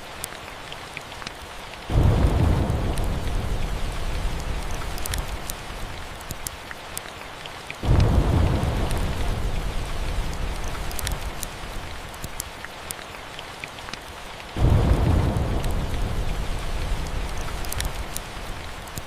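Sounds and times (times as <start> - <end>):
steady rain: 0.0 - 19.0
fireplace crackles: 1.2 - 7.1, 7.8 - 19.0
thunder rumbling: 1.9 - 6.3, 7.8 - 12.4, 14.6 - 19.0.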